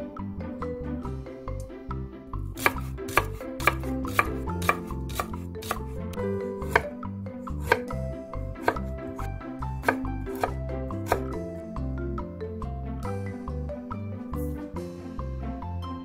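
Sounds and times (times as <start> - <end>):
background music: 0.0 - 16.0
knife chopping on wooden board: 2.6 - 6.0, 6.6 - 7.0, 7.6 - 8.0, 8.6 - 11.4.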